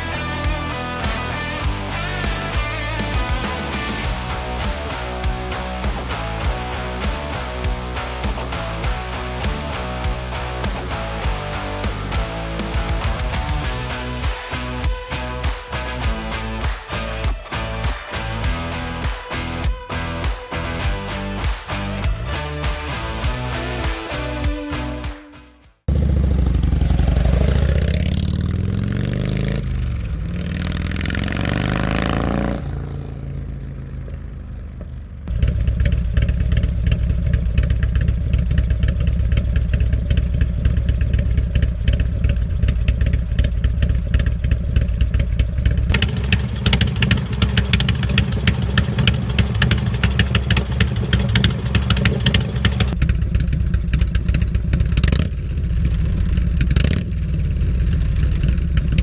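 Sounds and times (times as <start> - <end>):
motorcycle engine idling: 0.0 - 15.1, 33.6 - 59.0
motorcycle engine revving: 0.0 - 17.1, 25.9 - 59.0.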